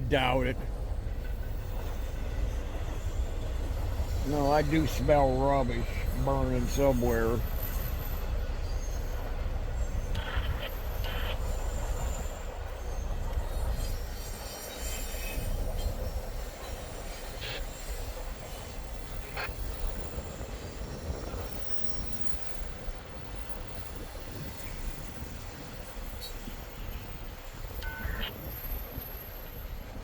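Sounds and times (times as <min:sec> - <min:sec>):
freight train wheels rumbling: 0:00.0 - 0:27.8
train wheel squeals: 0:00.8 - 0:30.0.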